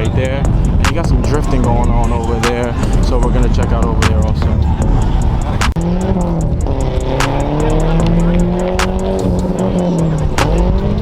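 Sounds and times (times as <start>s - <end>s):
car engine at high revs: 0.0s - 11.0s
sharp cracks: 7.0s - 9.1s.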